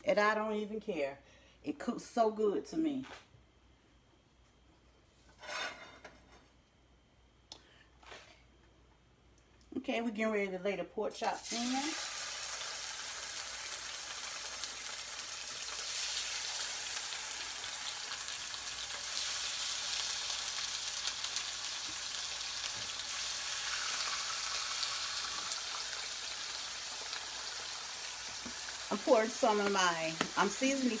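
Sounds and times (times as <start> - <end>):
meat sizzling in a pan: 11.3 - 31.0.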